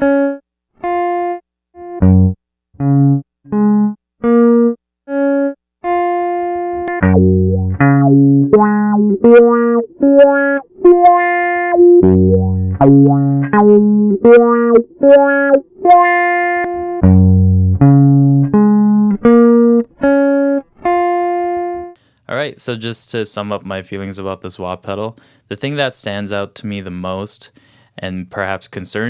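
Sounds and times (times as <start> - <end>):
picked guitar melody: 0.0 - 22.0
low bass line: 1.8 - 4.0, 6.6 - 19.9.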